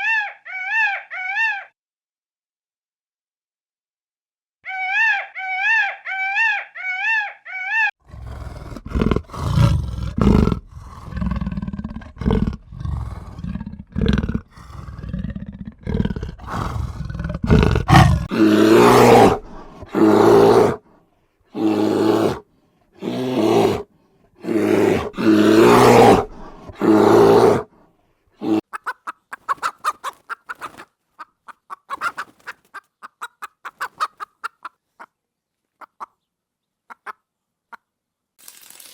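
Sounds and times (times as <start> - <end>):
loud animal calls: 0.0 - 1.8, 4.6 - 20.8, 24.4 - 27.7
low rough roaring and growling: 8.0 - 20.8, 21.6 - 22.4, 23.0 - 27.8.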